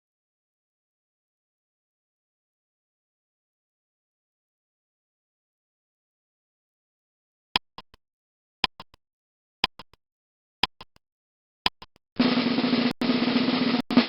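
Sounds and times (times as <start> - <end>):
quick triple clicks: 7.6 - 8.0, 8.6 - 9.0, 9.6 - 10.0, 10.6 - 11.0, 11.7 - 12.0
drum roll: 12.2 - 14.0.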